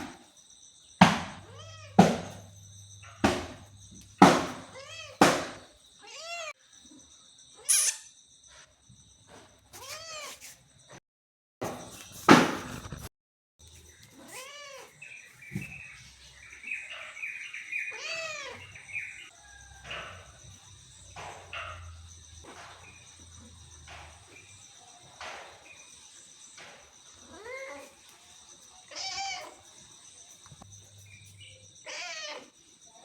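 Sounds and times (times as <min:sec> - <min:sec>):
cat meowing: 0:01.5 - 0:02.0, 0:04.7 - 0:05.2, 0:06.0 - 0:06.5, 0:14.2 - 0:15.0, 0:17.9 - 0:18.8, 0:27.3 - 0:27.9, 0:28.9 - 0:29.6, 0:31.8 - 0:32.6.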